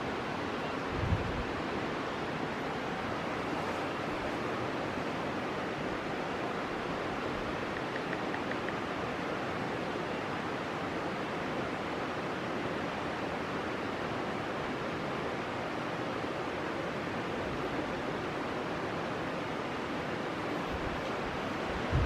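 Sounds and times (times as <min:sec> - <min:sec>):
faint high ticks: 0:07.6 - 0:08.8.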